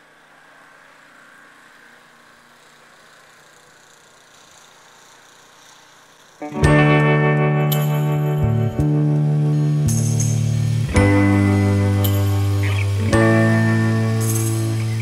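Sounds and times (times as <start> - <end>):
guitar music: 6.4 - 15.0.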